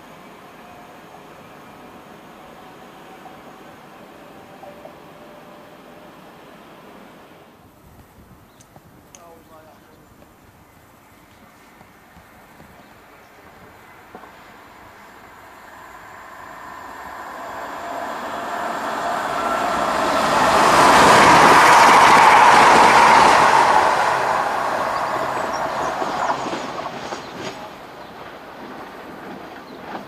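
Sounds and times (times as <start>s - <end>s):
train whine: 0.0s - 7.6s, 13.6s - 30.0s
train wheels rushing on rails: 11.7s - 30.0s.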